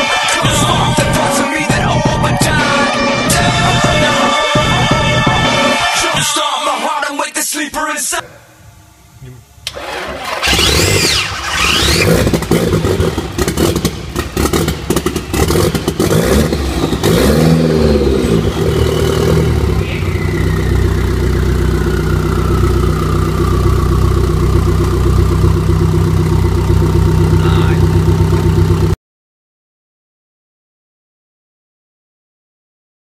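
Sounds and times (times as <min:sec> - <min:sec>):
falling whine: 0:08.2 - 0:28.4
car engine idling: 0:08.4 - 0:29.0
engine revving: 0:09.6 - 0:29.0
engine crackling knocks: 0:12.3 - 0:17.2.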